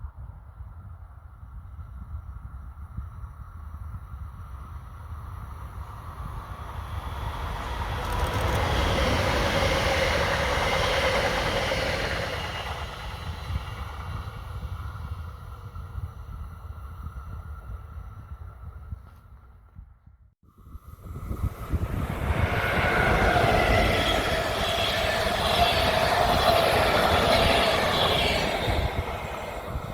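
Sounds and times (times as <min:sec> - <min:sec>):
wind rumbling on microphone: 0:00.0 - 0:29.9
train passing by: 0:04.4 - 0:17.7, 0:20.5 - 0:29.9.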